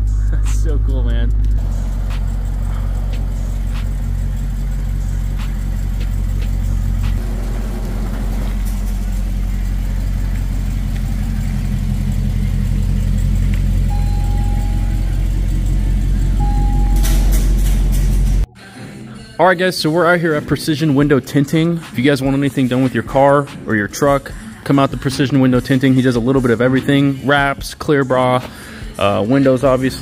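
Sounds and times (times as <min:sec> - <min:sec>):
car engine idling: 0:01.4 - 0:18.5.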